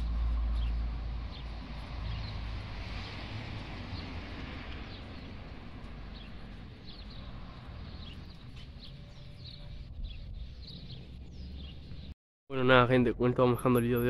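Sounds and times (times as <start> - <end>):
small birds chirping: 0.0 - 3.1, 3.9 - 12.2.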